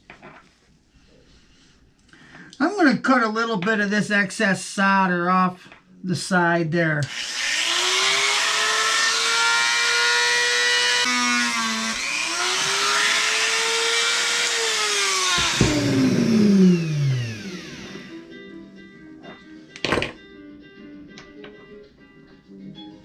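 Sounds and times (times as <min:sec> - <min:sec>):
rotary tool grinding solder: 0:07.1 - 0:18.1.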